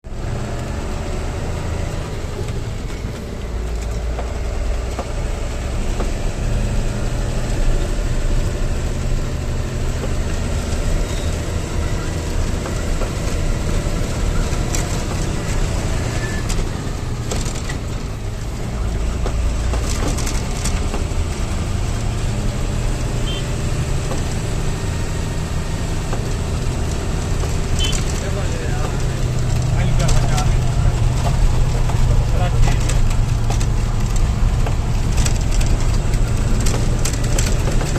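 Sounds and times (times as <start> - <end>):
heavy vehicle engine rumbling: 0.0 - 37.9
cracking and rattling noises: 0.4 - 37.9.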